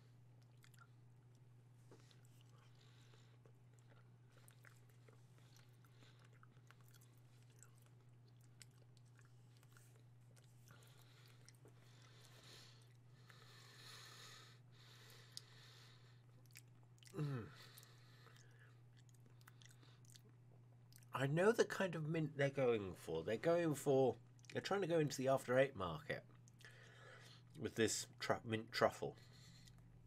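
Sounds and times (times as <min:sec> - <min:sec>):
low electrical hum: 0:00.0 - 0:30.0
person chewing food: 0:00.1 - 0:21.1, 0:26.3 - 0:27.6, 0:29.2 - 0:30.0.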